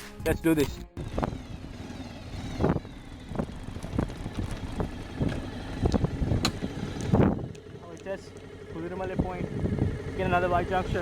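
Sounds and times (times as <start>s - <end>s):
motorcycle riding on gravel: 1.0s - 11.0s
wind on microphone: 2.4s - 7.6s, 9.2s - 10.0s.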